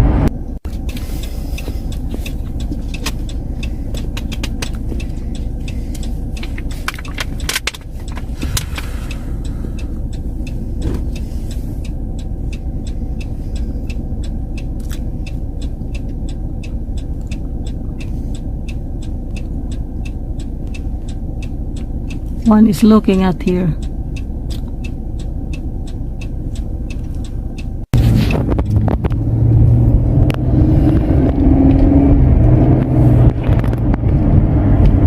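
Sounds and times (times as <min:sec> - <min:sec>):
car engine rumble: 0:00.0 - 0:35.0
regular light ticking: 0:00.6 - 0:27.9.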